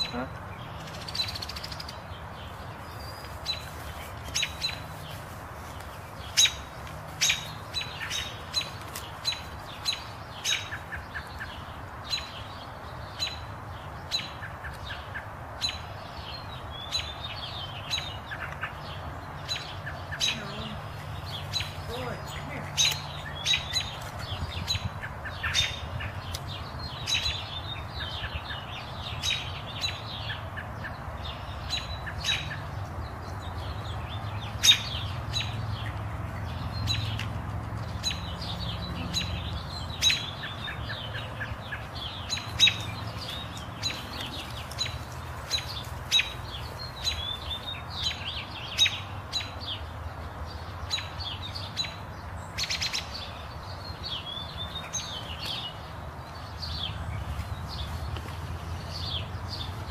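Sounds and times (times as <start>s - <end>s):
wild birds chirping: 0.0s - 59.9s.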